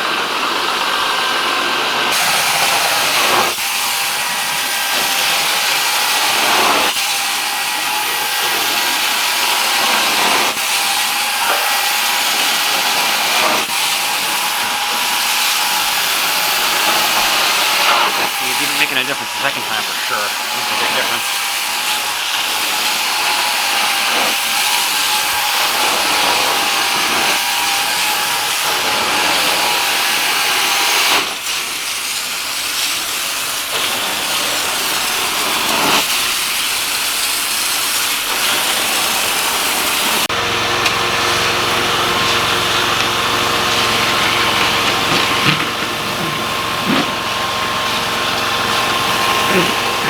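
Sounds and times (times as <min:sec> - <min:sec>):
suction and spray hiss: 0:02.1 - 0:40.2.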